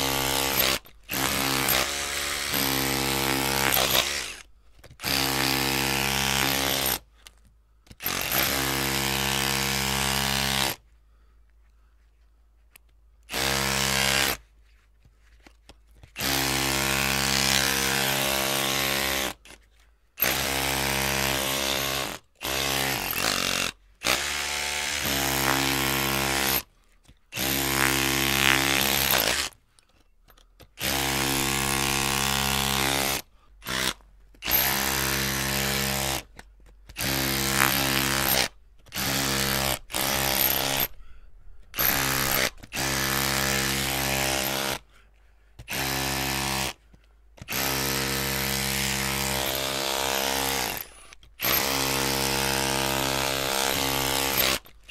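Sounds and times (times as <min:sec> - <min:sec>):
electric drill running: 0:00.0 - 0:04.4, 0:37.0 - 0:40.9, 0:41.8 - 0:44.8, 0:51.4 - 0:54.7.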